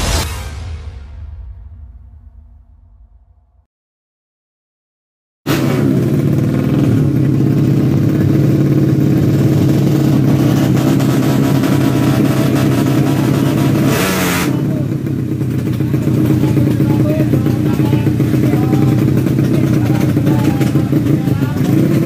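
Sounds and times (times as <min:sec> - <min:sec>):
rush of noise: 0:00.0 - 0:03.4
motorbike engine revving high: 0:05.5 - 0:22.0.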